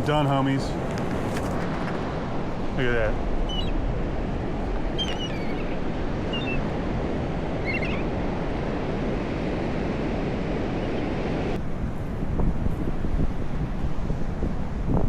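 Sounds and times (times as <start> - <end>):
ocean surf washing: 0.0 - 15.0
wind buffeting microphone: 0.0 - 15.0
high bird calls: 2.8 - 6.9, 7.5 - 8.2.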